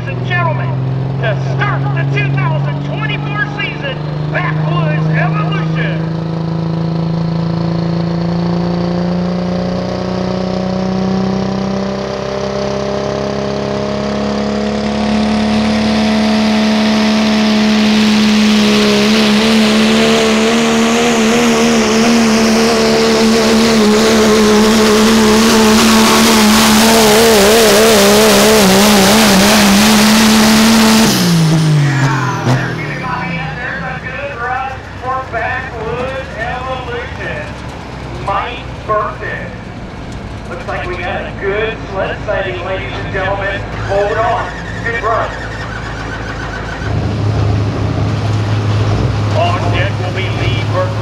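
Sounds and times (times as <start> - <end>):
truck engine at full throttle: 0.0 - 51.0
tyre and dirt noise: 16.8 - 51.0.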